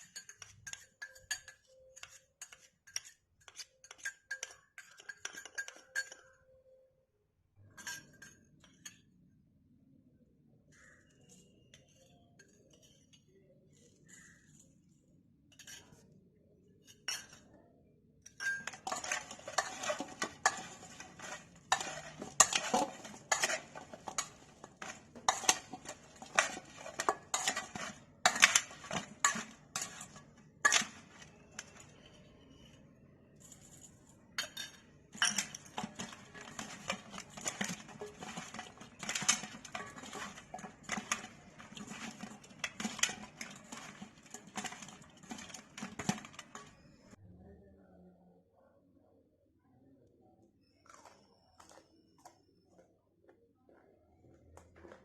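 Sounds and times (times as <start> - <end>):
spoon scraping a bowl: 0.0 - 6.6, 7.6 - 9.1, 11.1 - 14.7, 15.5 - 16.1, 16.8 - 17.5, 18.3 - 32.8, 34.4 - 47.2.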